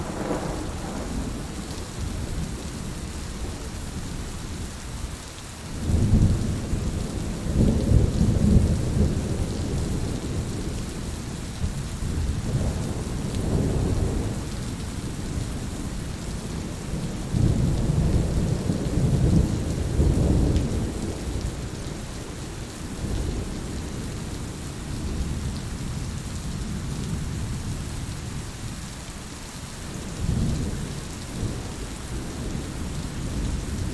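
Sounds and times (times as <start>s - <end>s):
rolling thunder: 0.0s - 2.7s
steady rain: 0.0s - 33.9s.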